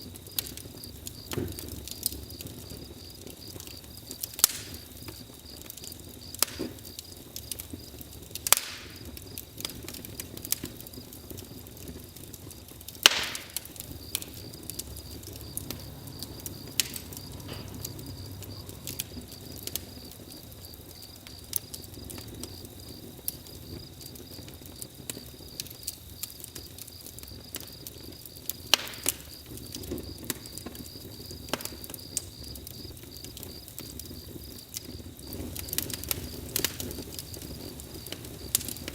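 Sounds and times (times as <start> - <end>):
crickets chirring: 0.0 - 38.9
wood fire crackling and popping: 0.0 - 38.9.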